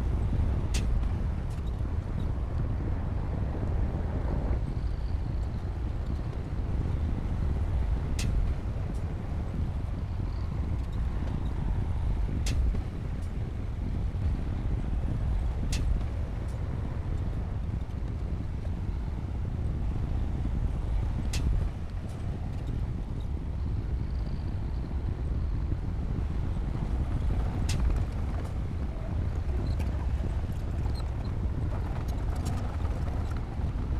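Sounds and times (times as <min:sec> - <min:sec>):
bulldozer diesel engine rumbling: 0:23.9 - 0:33.9.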